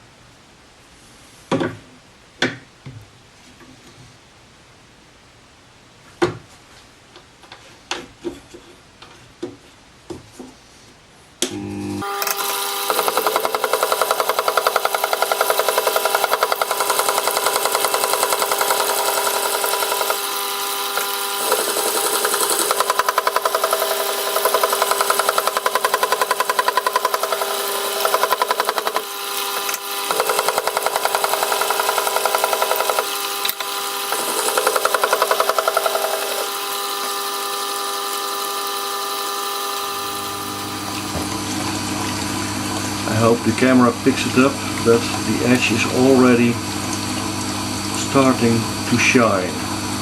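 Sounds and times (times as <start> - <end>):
sharpening machine motor humming: 11.5 - 43.1.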